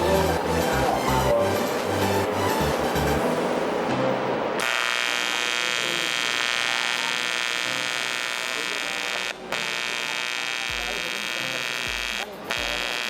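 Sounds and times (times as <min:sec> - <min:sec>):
welding arc buzzing: 0:04.6 - 0:13.0.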